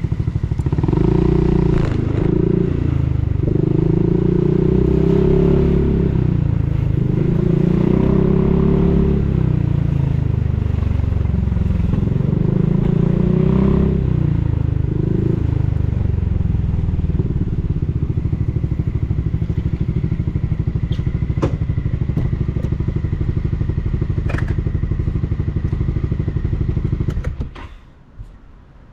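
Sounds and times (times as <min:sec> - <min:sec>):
scooter engine revving and idling: 0:00.0 - 0:27.7.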